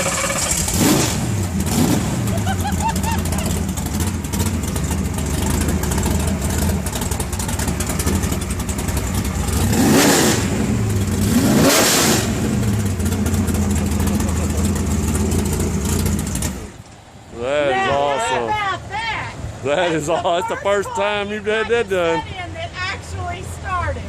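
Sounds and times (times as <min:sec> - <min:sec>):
race car engine idling and revving: 0:00.0 - 0:17.3.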